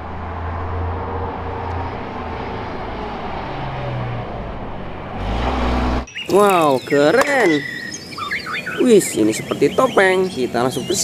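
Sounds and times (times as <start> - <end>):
bus diesel engine droning: 0.0 - 6.1.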